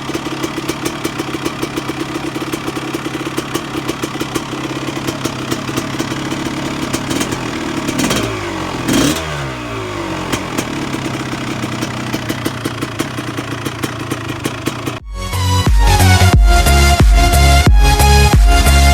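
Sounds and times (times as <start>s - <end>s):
two-stroke engine idling: 0.0s - 15.1s.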